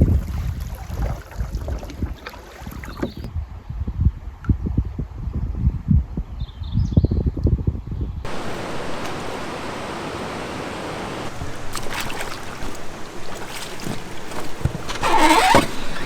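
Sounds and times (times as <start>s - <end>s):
river water rushing: 8.3s - 16.0s.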